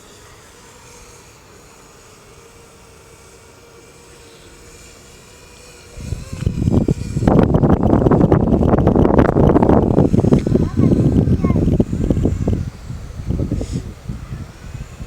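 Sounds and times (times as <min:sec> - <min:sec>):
drone motors whining: 0:00.0 - 0:15.0
gusty rush of noise: 0:06.0 - 0:15.0.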